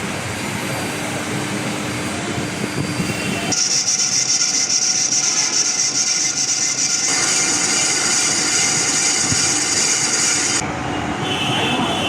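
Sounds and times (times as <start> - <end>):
high hiss-like whine: 3.5 - 10.6
machinery noise: 3.5 - 10.7.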